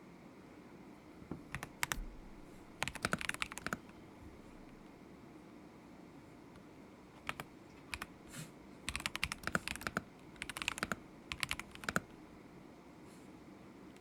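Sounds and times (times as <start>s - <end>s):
mechanical keyboard typing: 1.5s - 3.9s, 7.2s - 8.2s, 8.9s - 12.2s.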